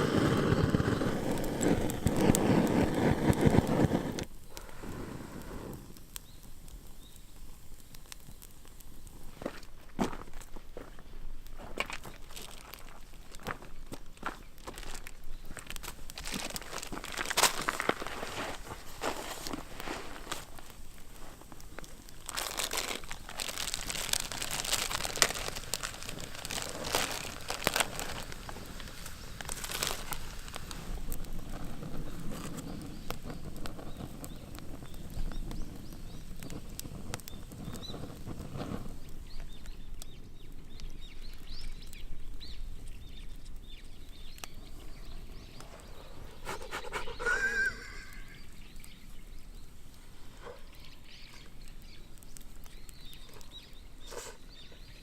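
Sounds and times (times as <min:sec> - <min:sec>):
crackling and crunching: 0:00.0 - 0:55.0
high animal call: 0:46.4 - 0:48.6.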